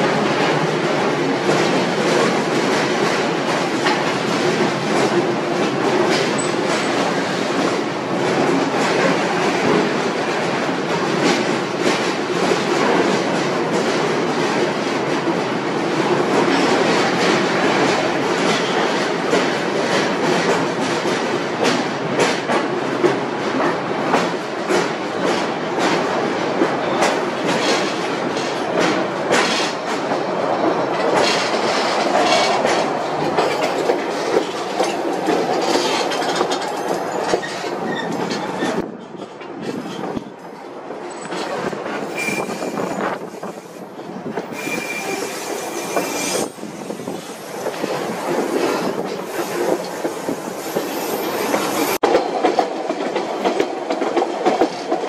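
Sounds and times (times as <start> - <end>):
train rumbling in a tunnel: 0.0 - 55.0
wheels clicking over rail joints: 16.4 - 40.2.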